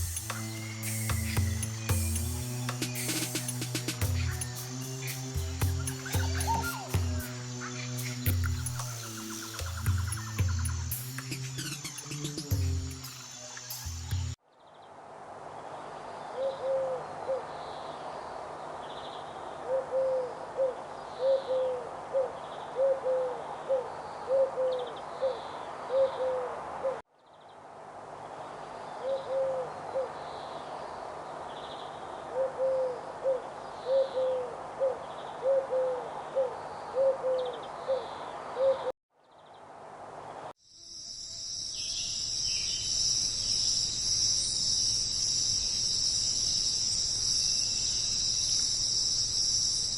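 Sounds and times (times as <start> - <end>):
faint high chirps: 0.0 - 14.4
high-pitched insect chorus: 0.0 - 14.4, 40.6 - 49.9.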